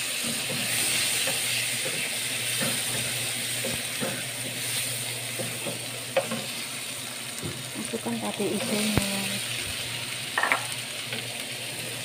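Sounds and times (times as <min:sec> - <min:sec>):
food sizzling in hot oil: 0:00.0 - 0:12.0
wooden spatula knocking pan: 0:10.4 - 0:10.7.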